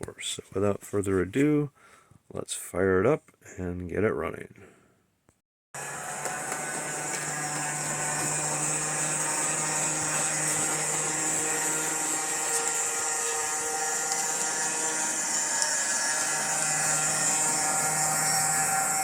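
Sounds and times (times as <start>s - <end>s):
model train motor whirring: 5.8s - 19.0s.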